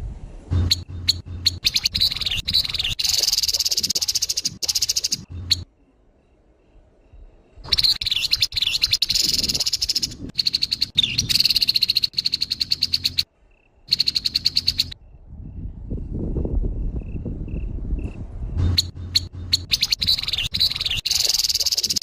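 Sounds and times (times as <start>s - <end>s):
bird rattling chatter: 0.6s - 5.6s, 7.8s - 13.2s, 13.9s - 14.9s, 18.6s - 22.0s.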